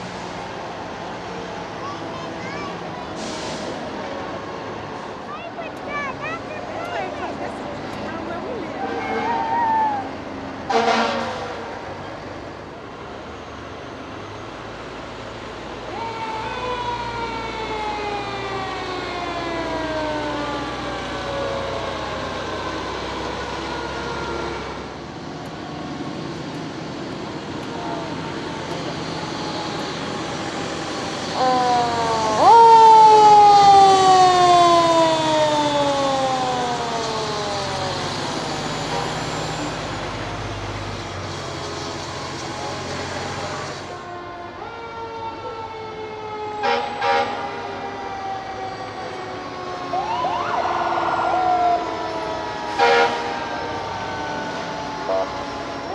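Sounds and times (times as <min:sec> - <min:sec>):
fire truck siren: 0:00.0 - 0:12.8, 0:13.4 - 0:55.9
truck engines humming: 0:00.0 - 0:55.9
short loud horn blast: 0:10.7 - 0:11.7, 0:46.6 - 0:47.6, 0:52.8 - 0:53.4.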